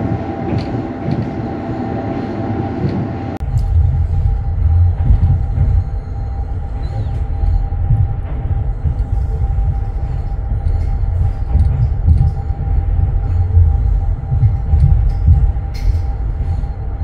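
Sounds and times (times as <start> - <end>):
steady hum: 0.0 - 17.0
train rumble: 0.0 - 17.0.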